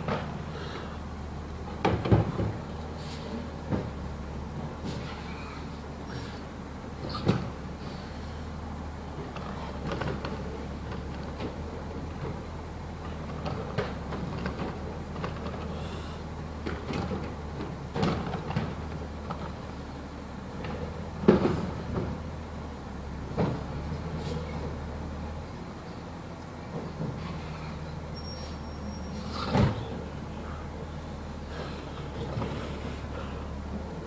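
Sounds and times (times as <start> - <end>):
knocks and clunks: 0.0 - 0.4, 1.6 - 2.8, 3.6 - 4.2, 20.6 - 22.4, 23.2 - 24.7
diesel engine running: 0.0 - 34.0.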